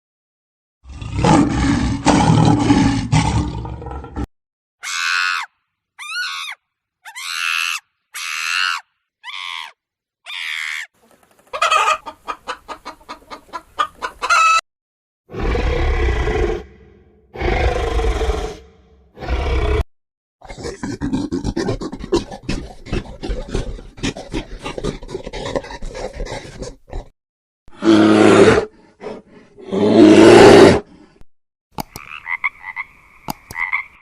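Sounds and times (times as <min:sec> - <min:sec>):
loud deep animal call: 0:15.3 - 0:19.8
rapid clucking pulses: 0:20.6 - 0:27.1.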